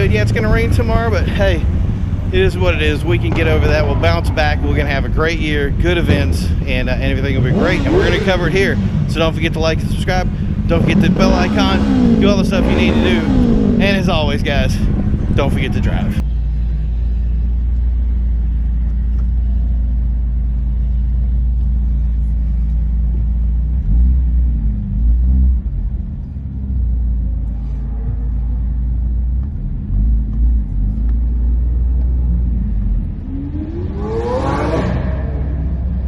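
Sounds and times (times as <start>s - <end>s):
engine revving blips: 0.0s - 16.3s, 27.5s - 36.0s
car engine idling: 0.0s - 34.0s.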